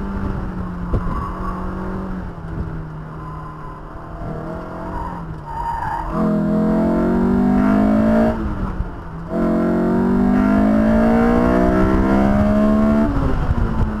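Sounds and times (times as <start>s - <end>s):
car engine accelerating hard: 6.0s - 14.0s.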